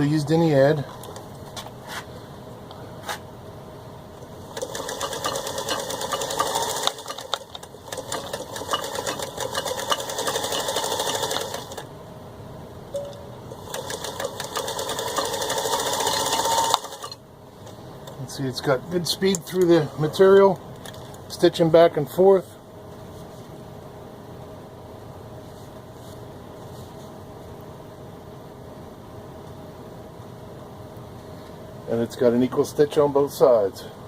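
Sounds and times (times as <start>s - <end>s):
sewing machine stitching: 4.5s - 11.8s, 13.6s - 17.2s
sewing machine clicks: 4.6s - 11.8s, 13.6s - 17.2s.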